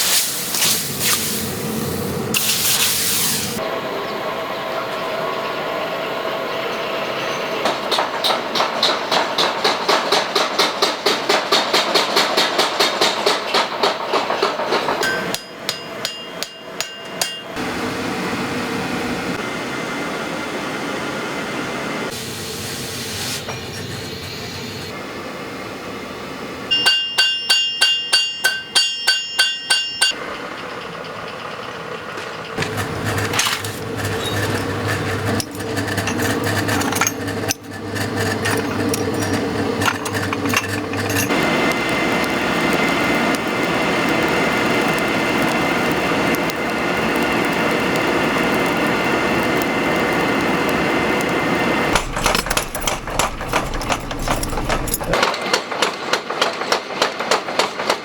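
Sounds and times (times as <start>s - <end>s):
hammer striking steel on anvil: 14.7s - 17.6s, 26.7s - 30.2s
machine hum and mechanical running: 17.5s - 26.9s, 30.2s - 55.6s.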